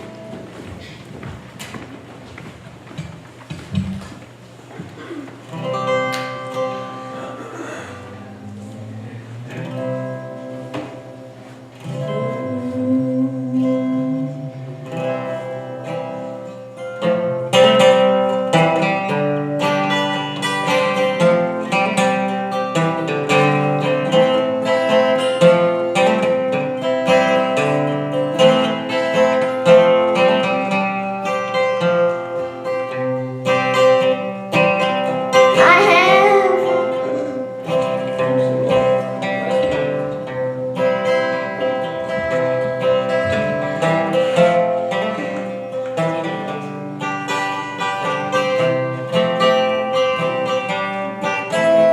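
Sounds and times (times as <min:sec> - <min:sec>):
picked guitar music: 0:00.0 - 0:02.4, 0:04.9 - 0:51.9
wavering held note: 0:07.9 - 0:16.4, 0:35.5 - 0:38.7, 0:51.5 - 0:51.9
steady bass line: 0:08.0 - 0:15.5.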